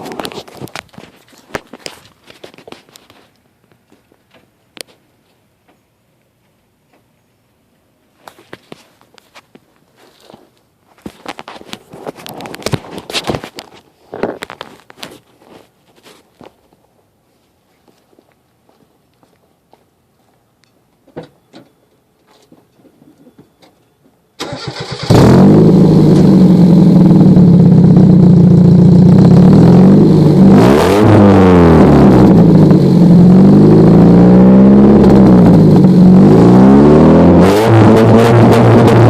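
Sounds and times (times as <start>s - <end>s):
loud engine revving: 24.4s - 28.1s, 28.9s - 39.0s
car engine cranking and starting: 24.4s - 39.0s.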